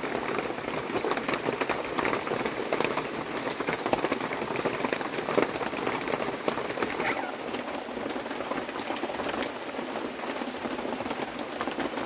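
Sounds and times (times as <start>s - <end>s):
rain pattering on a surface: 0.0s - 12.0s.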